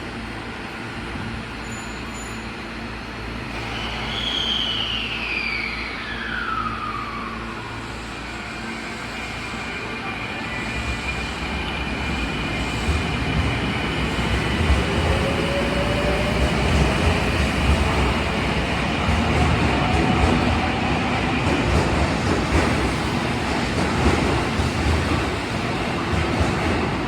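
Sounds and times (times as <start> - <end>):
train wheel rumble: 6.1 - 27.0.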